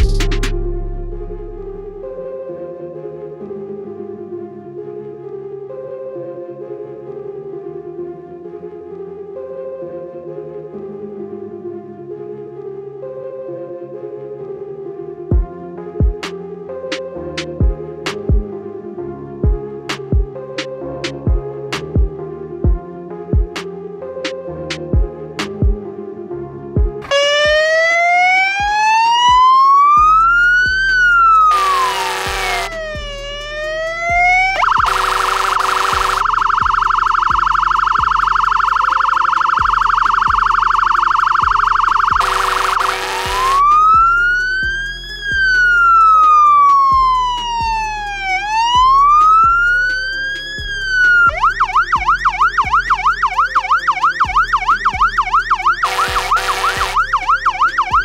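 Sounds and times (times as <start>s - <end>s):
music with steady beat: 0.0s - 2.2s, 15.3s - 18.6s, 19.4s - 25.9s, 26.7s - 58.0s
fire engine siren wailing: 27.1s - 58.0s
siren fast yelp: 27.1s - 58.0s
air horn blasts: 31.5s - 33.0s, 42.2s - 43.7s, 55.8s - 57.1s.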